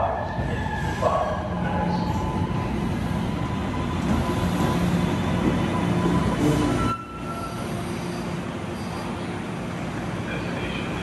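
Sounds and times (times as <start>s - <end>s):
train wheels rumbling on rail: 0.0s - 11.0s
high brake squeal: 6.0s - 9.2s.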